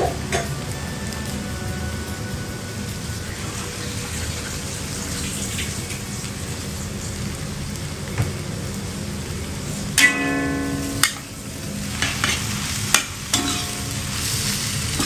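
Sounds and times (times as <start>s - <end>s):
loud steady tone: 0.0s - 3.3s
food sizzling in frying: 0.0s - 15.0s.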